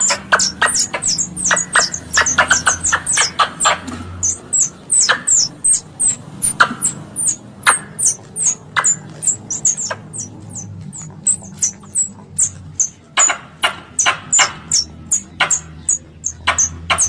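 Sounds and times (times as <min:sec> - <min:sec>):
squirrel call chirps: 0:00.0 - 0:17.0.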